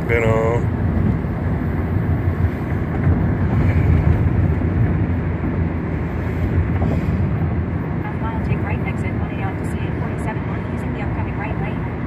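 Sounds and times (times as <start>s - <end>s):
road and tyre noise in car: 0.0s - 12.0s.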